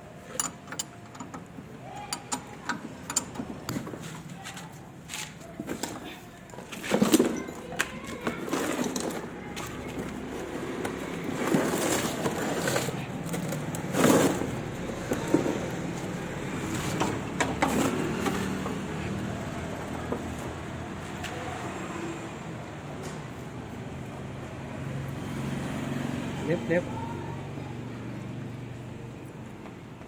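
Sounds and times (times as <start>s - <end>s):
knocks and metal clatter: 5.6s - 19.0s.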